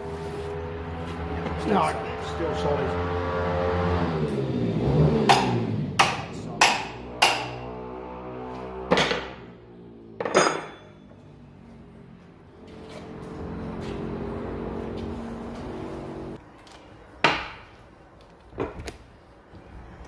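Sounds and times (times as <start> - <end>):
hammer striking metal: 5.3 - 7.8.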